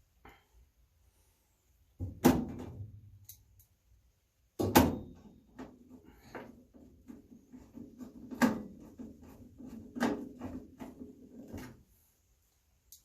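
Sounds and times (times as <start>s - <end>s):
parts knocking and rattling: 4.6s - 12.0s.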